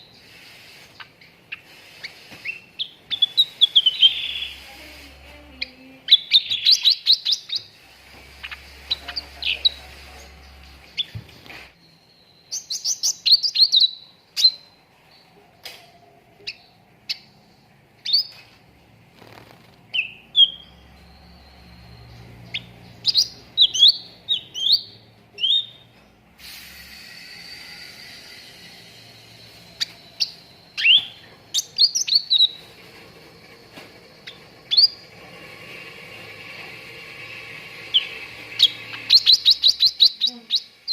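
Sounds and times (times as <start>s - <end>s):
bulbul chirping and whistling: 0.0s - 4.7s, 5.6s - 9.8s, 11.8s - 14.8s, 19.9s - 25.9s, 26.5s - 32.7s, 34.2s - 35.1s, 37.8s - 40.9s
background hiss: 0.0s - 11.8s, 26.2s - 40.9s.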